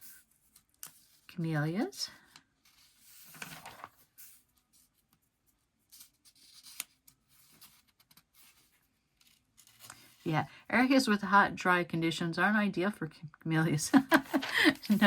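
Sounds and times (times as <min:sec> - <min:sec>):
magazine pages rustling: 0:01.8 - 0:10.4, 0:14.1 - 0:15.0.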